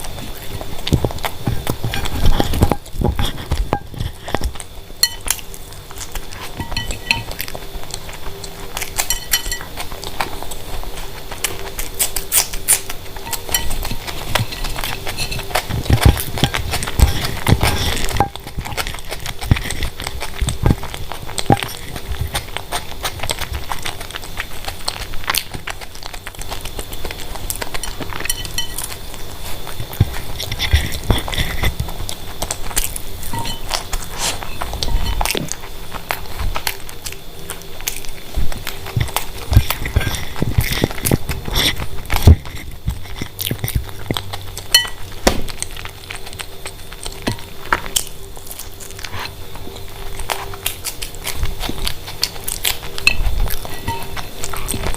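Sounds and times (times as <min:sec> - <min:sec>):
chewing and mouth smacks: 0:00.0 - 0:54.9.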